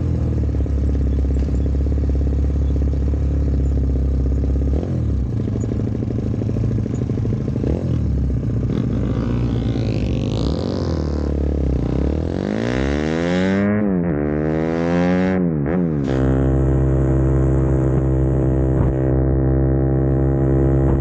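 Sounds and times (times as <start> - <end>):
mini-bike engine running: 0.0 - 11.9.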